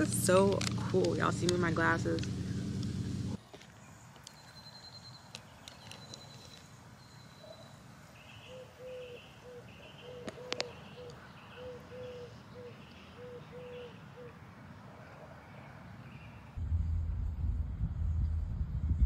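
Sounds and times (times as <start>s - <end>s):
birds calling repeated notes: 0.0s - 14.4s.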